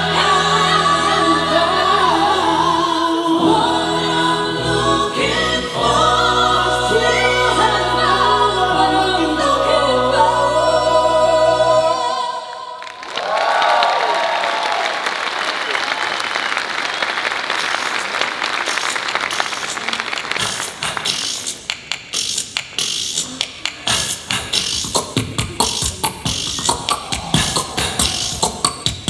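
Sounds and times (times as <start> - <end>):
voices singing in harmony: 0.0 - 13.0, 23.9 - 29.0
audience applause: 12.8 - 20.8.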